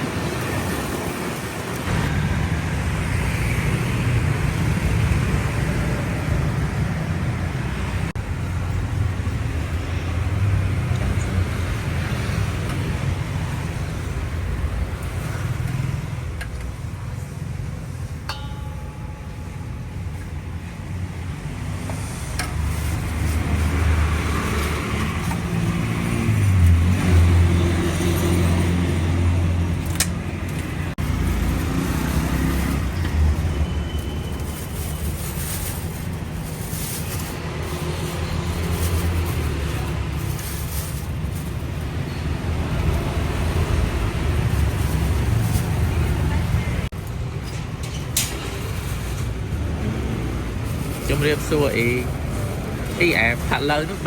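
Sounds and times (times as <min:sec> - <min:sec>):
road traffic noise: 0:00.0 - 0:54.0.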